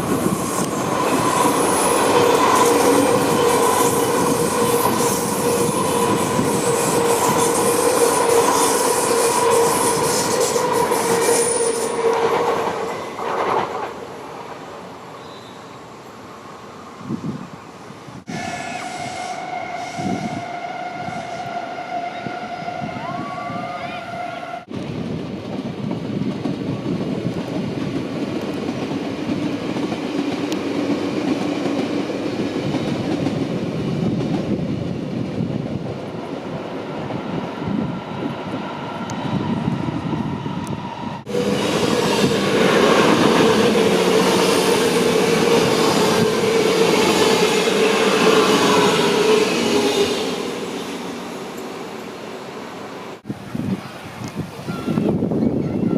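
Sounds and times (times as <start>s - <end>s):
train wheels rumbling on rails: 0.0s - 14.2s, 22.2s - 52.1s
electric train whine: 0.0s - 53.3s.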